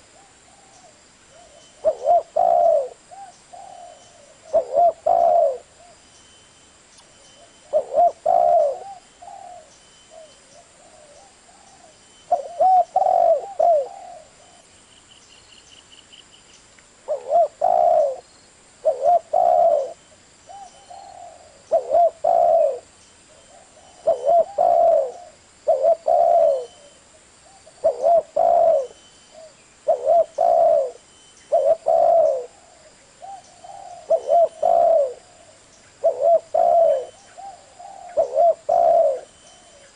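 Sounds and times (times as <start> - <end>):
dove cooing: 0.0 - 6.0, 7.4 - 14.7, 17.1 - 18.2, 18.8 - 39.9.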